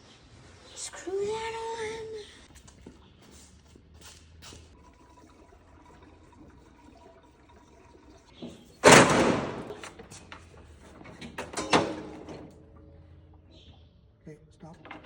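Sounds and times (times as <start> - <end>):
lawn mower engine cranking: 8.8 - 12.6.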